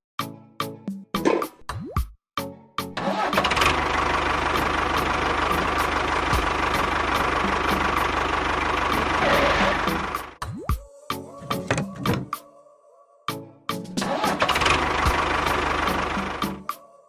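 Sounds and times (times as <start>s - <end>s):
small engine running: 3.0s - 10.4s, 14.0s - 16.7s.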